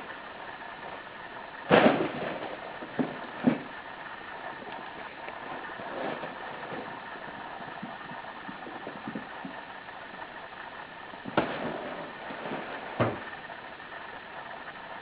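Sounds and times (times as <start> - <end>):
steady hiss: 0.0 - 15.0
sharp thumps: 1.7 - 3.8.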